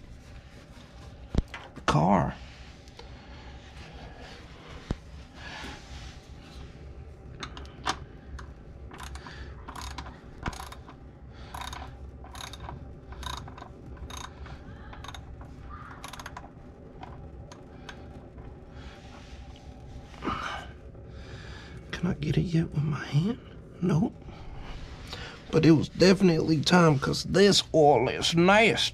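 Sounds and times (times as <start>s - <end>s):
ratchet wrench clicking: 9.0s - 15.3s, 16.0s - 16.4s.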